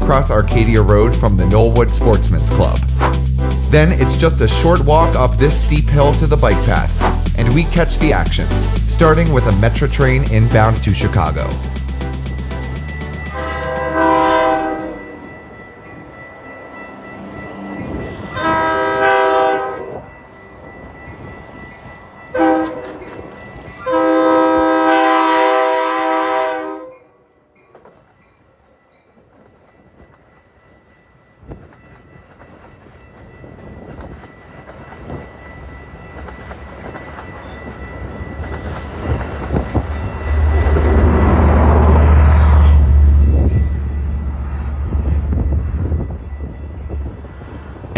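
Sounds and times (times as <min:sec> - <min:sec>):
train rumbling past: 0:00.0 - 0:26.8, 0:27.7 - 0:47.9
train horn blasts: 0:13.2 - 0:15.2, 0:18.3 - 0:20.0, 0:22.4 - 0:23.0, 0:23.8 - 0:27.3.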